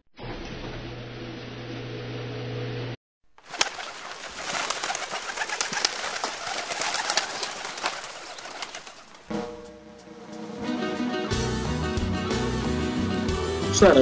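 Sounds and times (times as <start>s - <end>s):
birds chirping: 3.4s - 9.3s.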